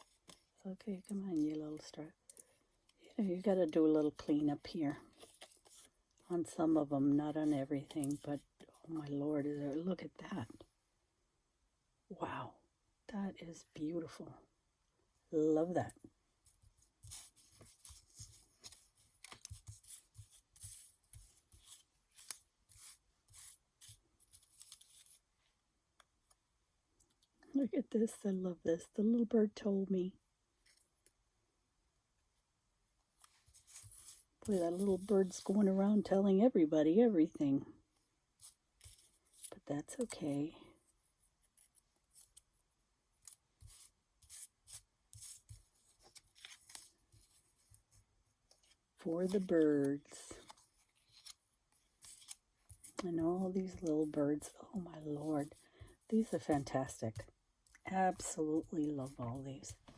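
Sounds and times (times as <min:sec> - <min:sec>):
papery rustles and scrapes: 0:04.3 - 0:06.0, 0:16.5 - 0:25.3, 0:33.2 - 0:35.8, 0:43.2 - 0:57.3.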